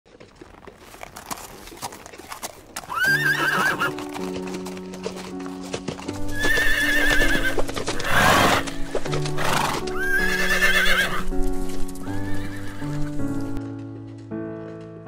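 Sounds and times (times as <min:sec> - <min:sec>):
horse whinnying: 0:02.3 - 0:04.1, 0:06.2 - 0:11.3, 0:12.0 - 0:13.1
keyboard background music: 0:02.3 - 0:15.0.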